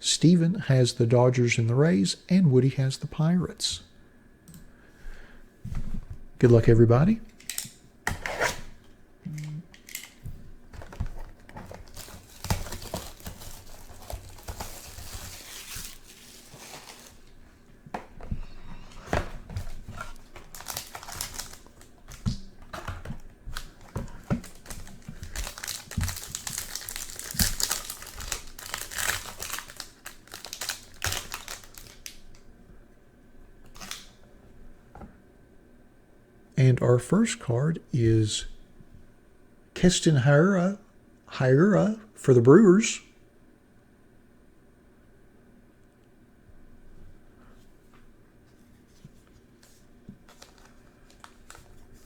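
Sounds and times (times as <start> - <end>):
plastic wrapping crinkling and tearing: 10.8 - 17.5, 19.5 - 32.4, 33.7 - 34.2, 50.2 - 52.0.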